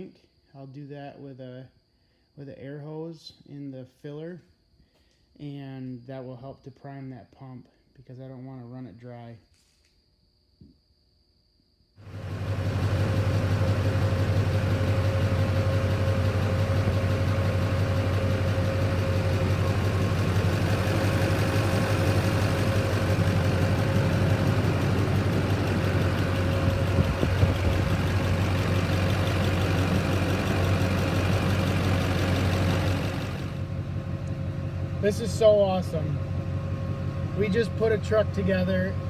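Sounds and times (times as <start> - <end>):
diesel engine idling: 12.0 - 39.0
engine whine: 12.0 - 39.0.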